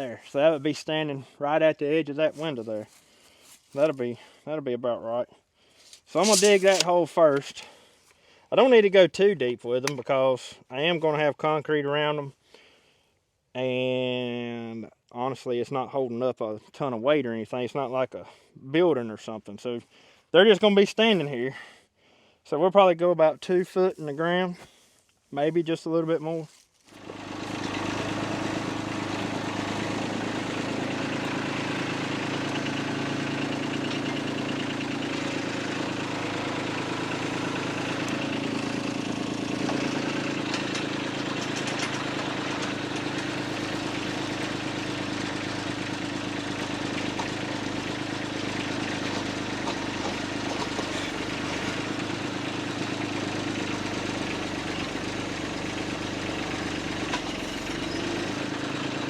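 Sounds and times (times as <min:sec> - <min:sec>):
engine running steadily: 0:05.8 - 0:07.7, 0:26.9 - 0:59.0.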